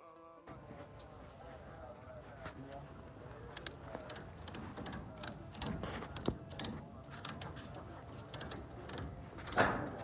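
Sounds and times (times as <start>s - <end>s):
low background noise: 0.0s - 10.0s
light clicks and taps: 2.4s - 9.6s.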